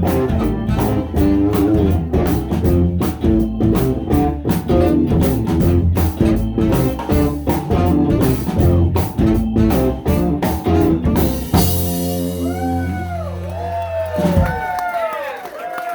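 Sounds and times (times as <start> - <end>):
blues-rock band playing: 0.0 - 14.9
audience whooping: 11.7 - 15.9.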